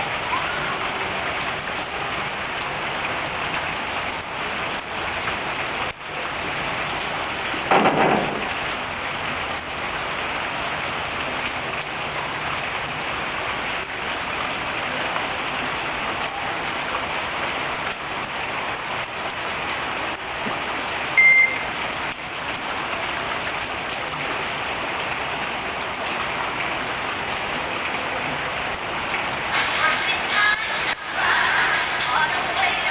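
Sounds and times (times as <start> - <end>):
rain falling: 0.0 - 32.9
short high beep: 21.2 - 21.7.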